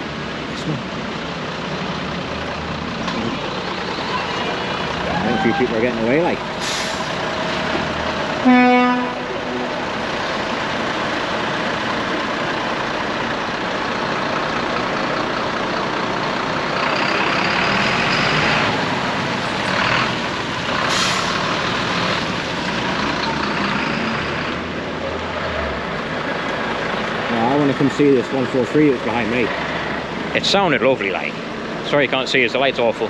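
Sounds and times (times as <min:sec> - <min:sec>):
heavy lorries moving off: 0:00.0 - 0:33.0
air-brake hisses: 0:06.6 - 0:07.2, 0:20.9 - 0:21.4
lorry horn blast: 0:08.4 - 0:10.2.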